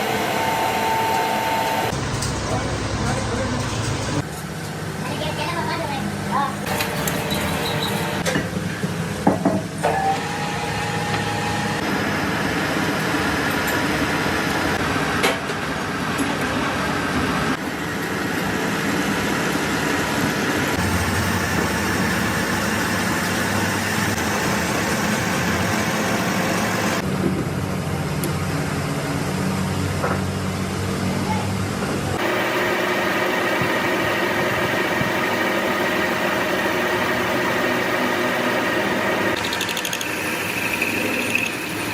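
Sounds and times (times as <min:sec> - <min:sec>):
metal lathe motor hum: 0:00.0 - 0:02.1, 0:10.0 - 0:14.8, 0:32.2 - 0:41.9.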